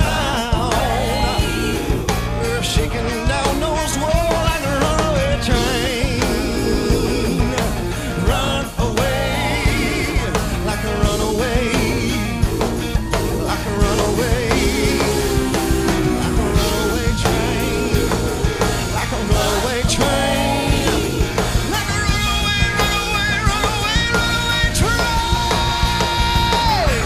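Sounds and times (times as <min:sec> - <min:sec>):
band playing gospel rock: 0:00.0 - 0:27.0
steady drum beat: 0:00.0 - 0:27.0
wavering vocal or lead guitar: 0:00.0 - 0:27.0.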